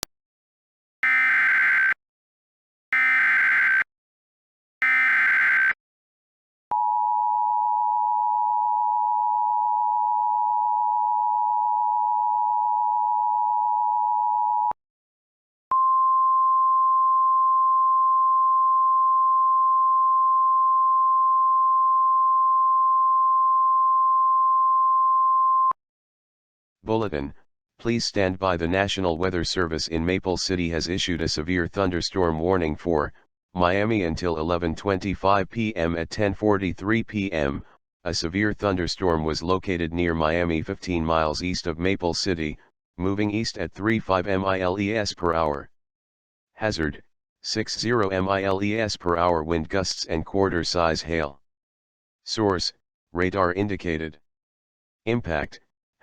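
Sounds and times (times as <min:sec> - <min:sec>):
screeching data bursts: 0:01.0 - 0:02.0, 0:03.0 - 0:03.8, 0:04.8 - 0:05.8
steady warning tone: 0:01.0 - 0:02.0, 0:03.0 - 0:03.9, 0:04.8 - 0:05.8
two-tone attention signal: 0:01.0 - 0:02.0, 0:03.0 - 0:03.9, 0:04.8 - 0:05.8.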